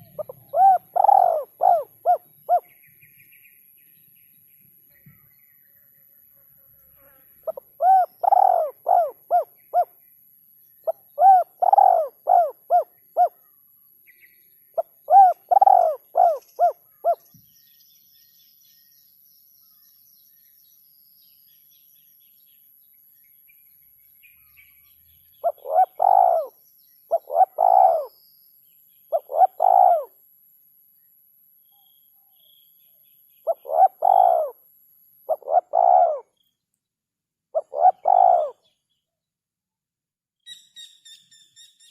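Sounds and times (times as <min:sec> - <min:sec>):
dove cooing: 0:00.0 - 0:02.7, 0:07.4 - 0:09.9, 0:10.9 - 0:13.4, 0:14.8 - 0:17.2, 0:25.4 - 0:28.1, 0:29.1 - 0:30.1, 0:33.5 - 0:34.6, 0:35.3 - 0:36.3, 0:37.6 - 0:38.6.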